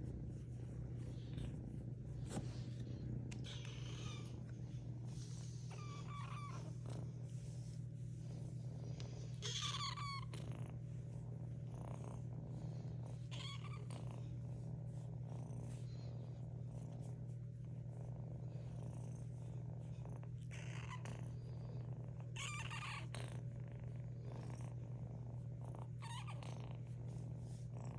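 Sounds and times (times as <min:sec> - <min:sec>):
kitten purring: 0:00.0 - 0:27.9.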